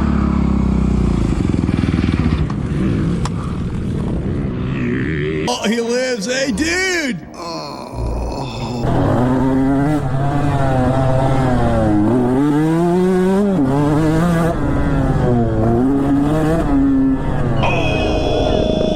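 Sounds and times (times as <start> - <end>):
dirt bike engine revving: 8.8 - 17.8.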